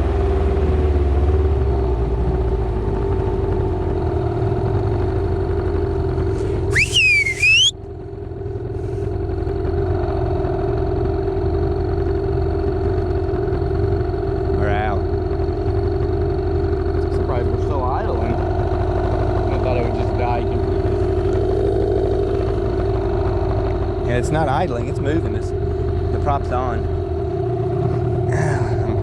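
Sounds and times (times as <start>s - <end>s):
boat motor rumbling: 0.0s - 29.0s
high whistle-like glide: 6.7s - 7.7s.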